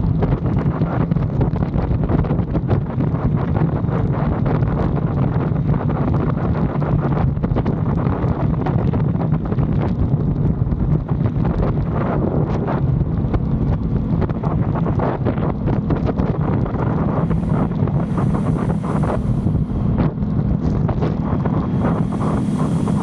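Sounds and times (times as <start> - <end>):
wind rushing over microphone: 0.0 - 23.0
motorcycle engine droning: 12.8 - 23.0.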